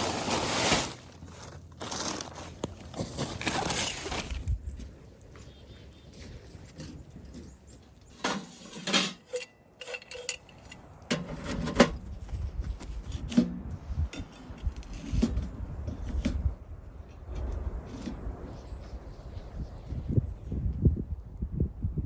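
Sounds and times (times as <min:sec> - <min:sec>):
rustling: 0:00.0 - 0:05.5.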